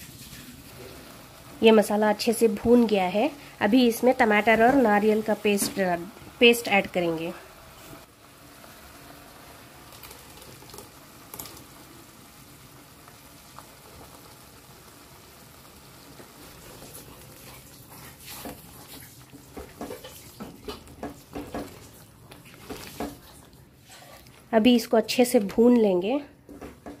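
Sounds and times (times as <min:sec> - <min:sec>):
paste sizzling in hot oil: 0:00.0 - 0:27.0
wooden spatula scraping pan: 0:16.4 - 0:24.5.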